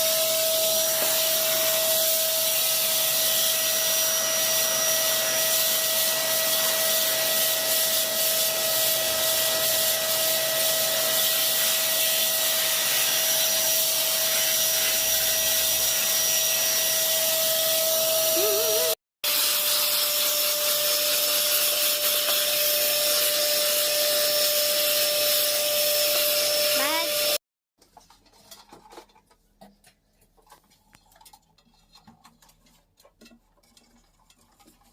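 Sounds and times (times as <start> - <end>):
vacuum cleaner running: 0.0 - 27.4.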